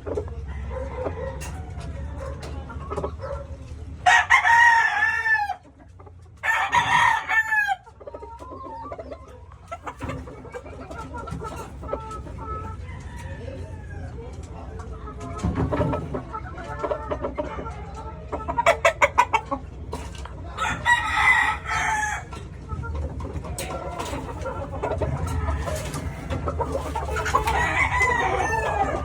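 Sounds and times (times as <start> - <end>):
chicken clucking: 0.0 - 29.0
rooster crowing: 4.0 - 5.6, 6.4 - 7.8, 20.5 - 22.4, 25.0 - 29.0.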